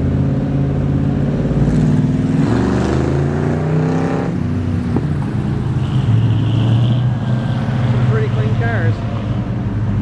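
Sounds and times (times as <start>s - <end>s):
car engines cruising by: 0.0s - 10.0s.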